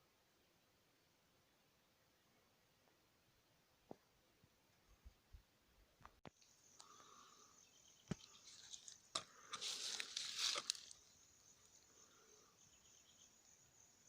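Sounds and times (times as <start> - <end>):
high-pitched insect trill: 6.4 - 14.0
dry crunching rustle: 8.3 - 11.1.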